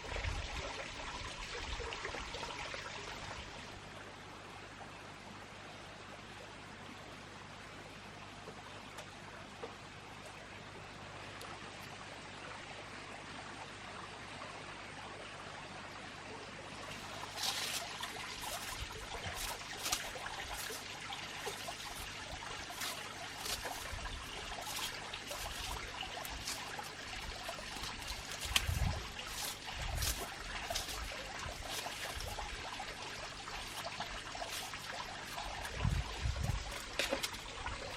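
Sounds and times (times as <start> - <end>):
water trickling: 16.7 - 37.9.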